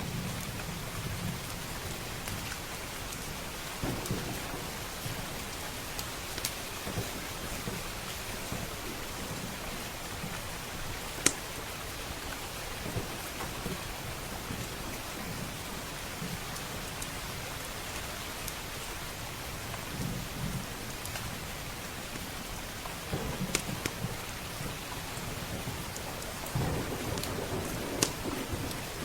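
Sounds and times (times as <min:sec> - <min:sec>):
steady rain: 0:00.0 - 0:29.0
sharp crackles: 0:03.8 - 0:08.8, 0:23.2 - 0:29.0
thunder rumbling low: 0:03.8 - 0:10.3, 0:23.1 - 0:29.0.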